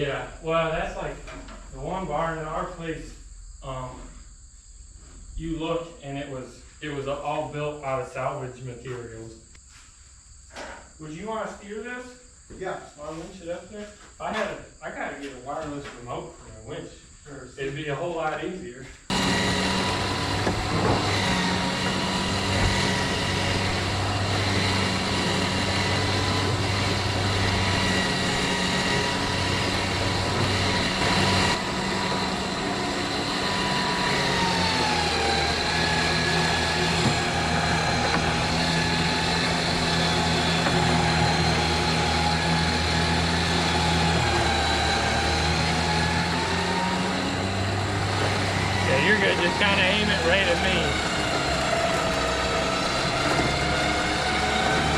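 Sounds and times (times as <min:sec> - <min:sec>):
electric winch whining: 0:19.1 - 0:54.9.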